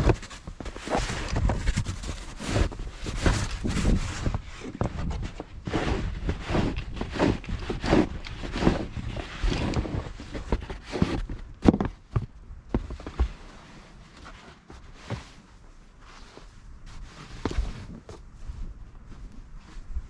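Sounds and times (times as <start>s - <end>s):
snow shovel crunching and scraping: 5.6s - 11.2s.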